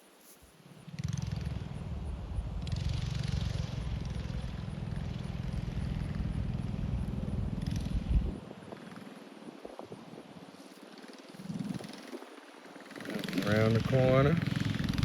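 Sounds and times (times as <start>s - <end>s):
distant small engine running: 0.8s - 15.0s
wind buffeting microphone: 5.8s - 15.0s.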